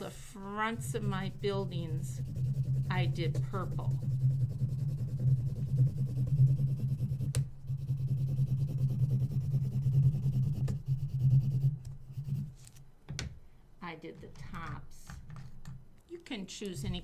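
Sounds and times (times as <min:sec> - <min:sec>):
colored pencil scratching on paper: 0:00.6 - 0:12.8.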